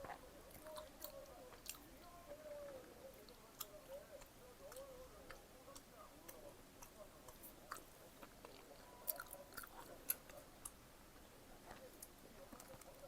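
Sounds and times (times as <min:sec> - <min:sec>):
person chewing food: 0:00.0 - 0:01.9, 0:03.2 - 0:10.8.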